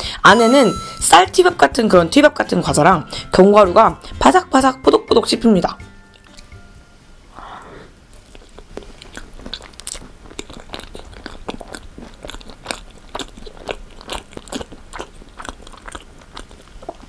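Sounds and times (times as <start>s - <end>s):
crisp chewing crunches: 8.1s - 17.0s.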